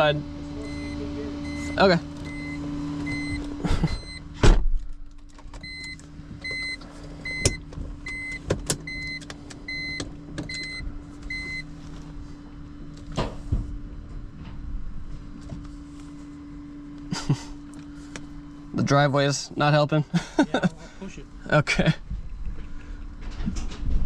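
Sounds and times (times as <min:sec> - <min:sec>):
truck running hum: 0:00.0 - 0:24.0
reverse alarm beeping: 0:00.6 - 0:04.3, 0:05.6 - 0:11.7.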